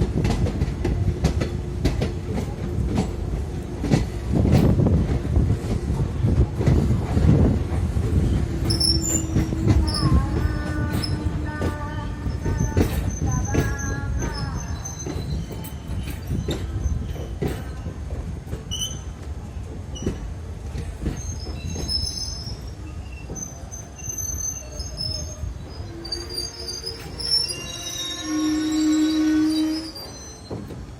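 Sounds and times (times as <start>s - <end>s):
wheels clacking over rail joints: 0.0s - 23.8s
train wheels rumbling: 0.0s - 30.9s
wheel and brake squeals: 8.3s - 17.9s, 18.7s - 19.2s, 21.1s - 30.9s.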